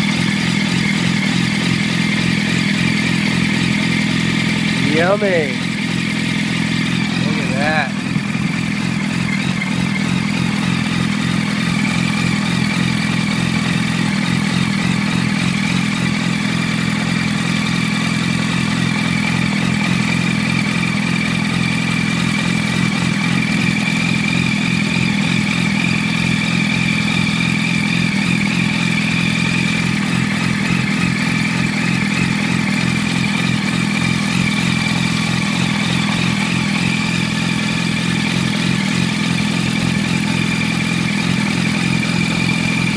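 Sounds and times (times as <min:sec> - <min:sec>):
motorcycle engine idling: 0:00.0 - 0:42.9
steady high whine: 0:04.6 - 0:12.1.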